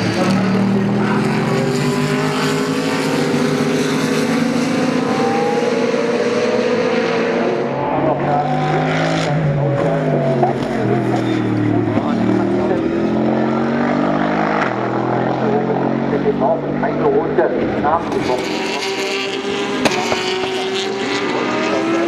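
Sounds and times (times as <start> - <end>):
race car engines: 0.0 - 22.0.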